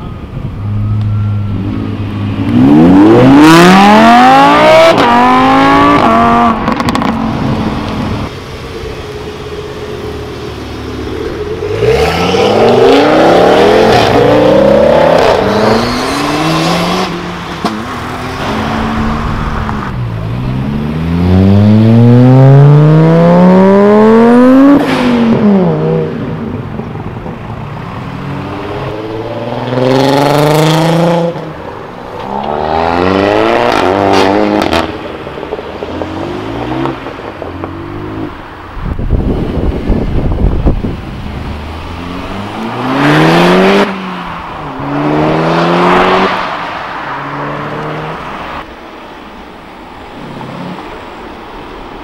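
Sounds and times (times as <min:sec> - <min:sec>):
cars accelerating hard: 0:00.7 - 0:08.3, 0:09.2 - 0:26.6, 0:28.0 - 0:38.6, 0:39.4 - 0:48.7.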